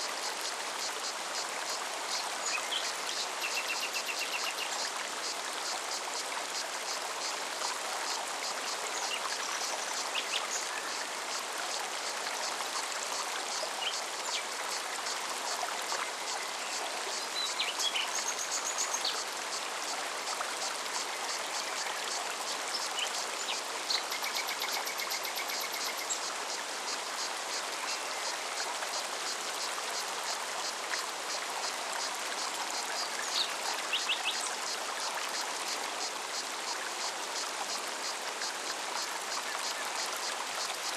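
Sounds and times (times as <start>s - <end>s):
stream running over rocks: 0.0s - 40.9s
cicada pulsing song: 24.0s - 28.7s.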